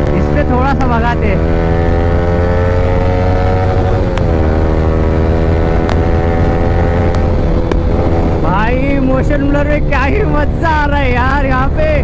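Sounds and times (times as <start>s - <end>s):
motorcycle engine running: 0.0s - 12.0s
wind and road rumble: 0.0s - 12.0s
sharp clicks: 3.8s - 4.4s, 5.8s - 8.4s.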